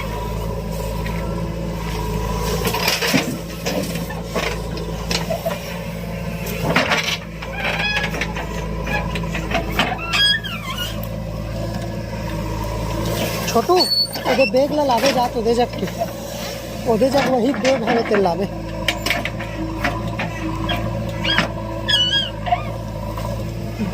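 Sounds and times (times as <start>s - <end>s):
heavy diesel machinery running: 0.0s - 23.9s
knocks and clanks: 6.6s - 10.5s, 17.2s - 21.6s
high-pitched chirps and squeals: 13.7s - 14.7s, 20.7s - 22.8s.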